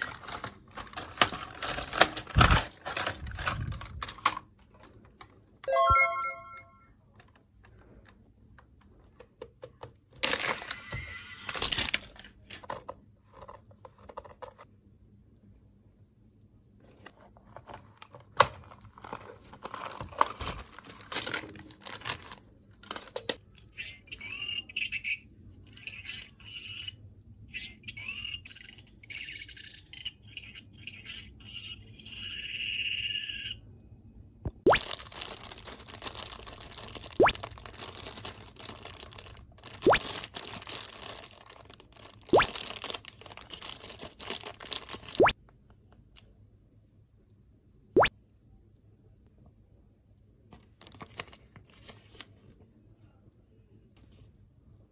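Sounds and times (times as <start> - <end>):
packaging tearing and crinkling: 0.0 - 4.3, 10.2 - 10.8, 11.4 - 12.6, 18.4 - 23.2, 34.7 - 45.3
plastic parts clicking: 0.0 - 5.4, 7.2 - 14.6, 17.5 - 23.7.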